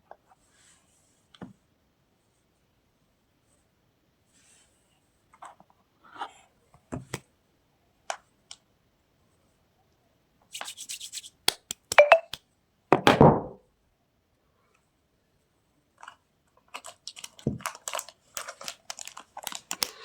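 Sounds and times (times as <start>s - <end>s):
packaging rustle: 16.0s - 20.0s.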